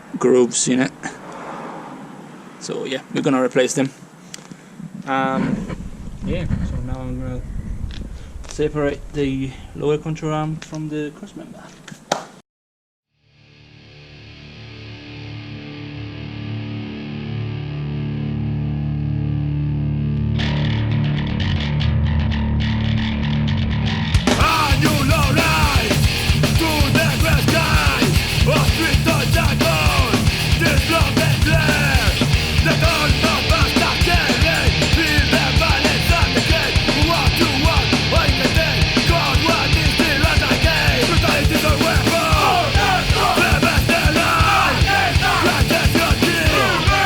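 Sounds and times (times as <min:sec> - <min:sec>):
fast punk rock music: 0:24.2 - 0:47.0.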